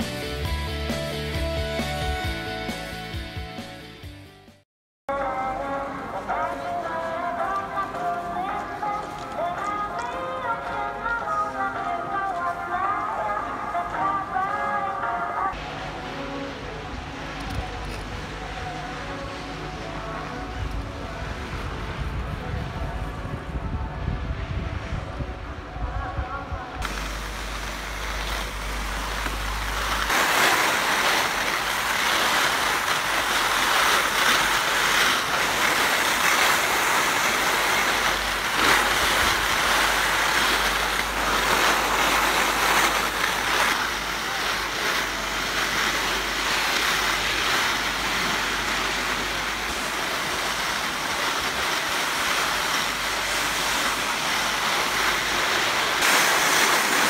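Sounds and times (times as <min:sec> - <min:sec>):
skis sliding over snow: 0:05.1 - 0:15.2, 0:26.8 - 0:57.0
wind rushing over microphone: 0:19.8 - 0:27.0.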